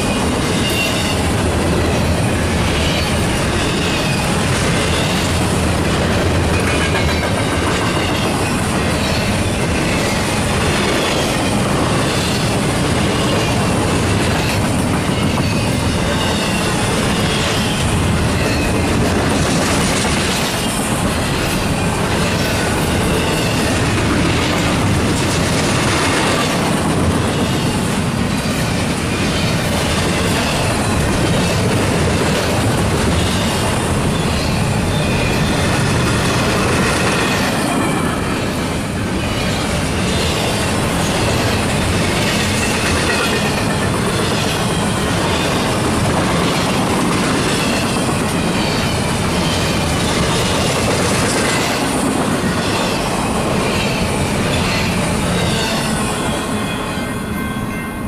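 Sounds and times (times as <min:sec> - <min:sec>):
wheel and rail rushing noise: 0:00.0 - 0:58.0
wavering high wheel squeal: 0:00.1 - 0:05.5, 0:14.4 - 0:18.9, 0:52.4 - 0:58.0.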